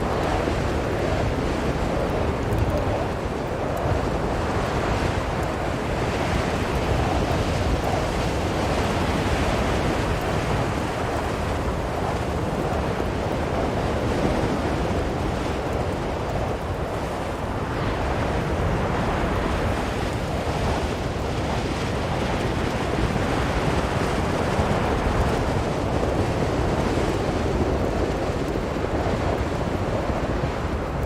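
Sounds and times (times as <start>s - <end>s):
blizzard wind blowing: 0.0s - 31.0s.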